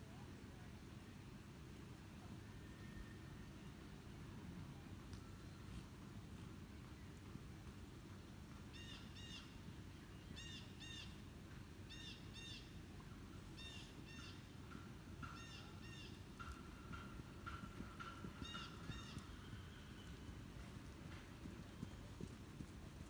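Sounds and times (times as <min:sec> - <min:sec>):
low outdoor rumble: 0:00.0 - 0:23.0
bird calling: 0:08.7 - 0:09.6, 0:13.5 - 0:22.4.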